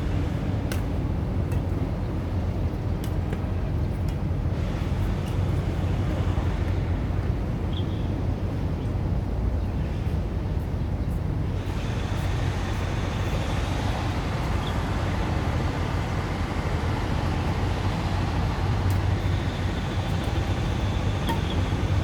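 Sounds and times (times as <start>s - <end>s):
strong wind buffeting microphone: 8.3s - 22.0s.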